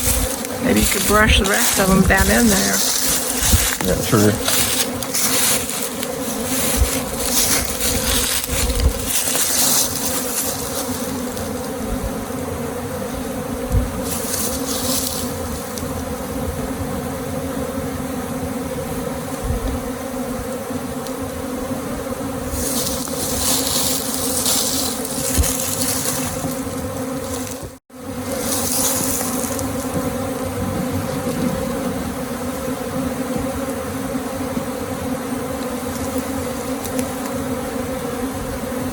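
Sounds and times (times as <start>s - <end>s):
bees buzzing: 0.0s - 38.9s.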